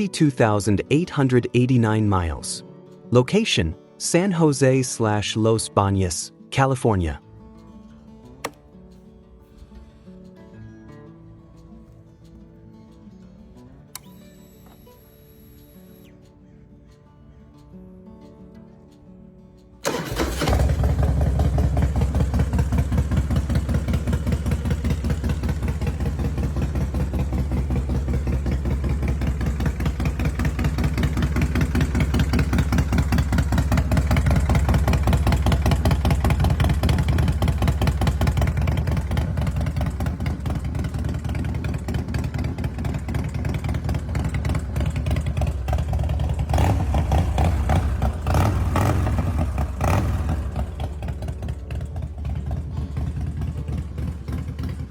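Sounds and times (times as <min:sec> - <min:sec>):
motorcycle engine idling: 0:19.8 - 0:54.9
motorcycle throttle blips: 0:19.8 - 0:54.9.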